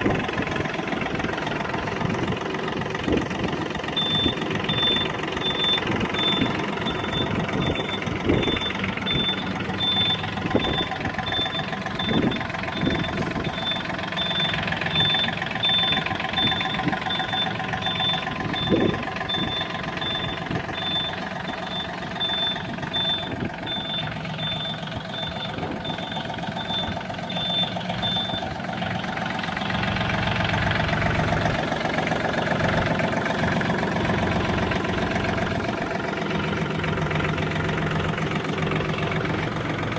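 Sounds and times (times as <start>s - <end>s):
diesel tractor engine running: 0.0s - 39.9s
high-pitched beeps: 4.0s - 28.5s.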